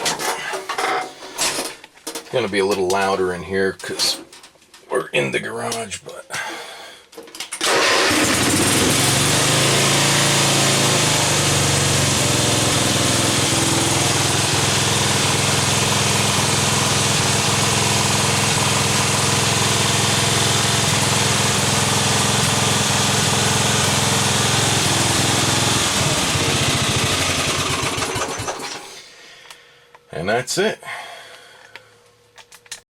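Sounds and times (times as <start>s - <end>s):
lawn tractor engine running: 7.6s - 29.0s.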